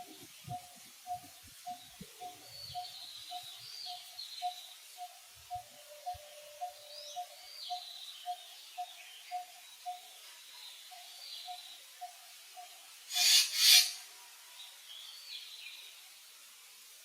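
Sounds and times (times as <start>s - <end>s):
bird repeating short note: 13.1s - 14.0s
high gliding bird chirps: 13.1s - 14.0s.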